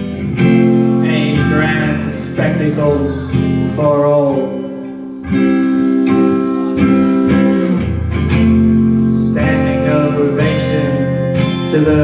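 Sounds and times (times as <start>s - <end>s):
guitar chords ringing: 0.0s - 12.0s
deep bass note: 5.0s - 10.3s.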